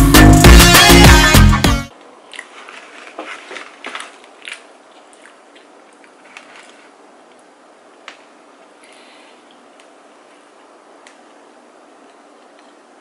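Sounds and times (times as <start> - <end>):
background music with drums: 0.0 - 1.9
faint chewing: 2.0 - 11.4.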